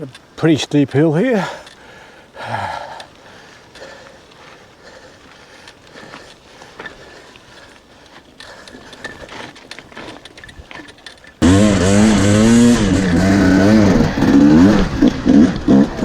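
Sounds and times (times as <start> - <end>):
bike chain and gear clicks: 1.4 - 16.0
electric motor whine: 11.4 - 16.0.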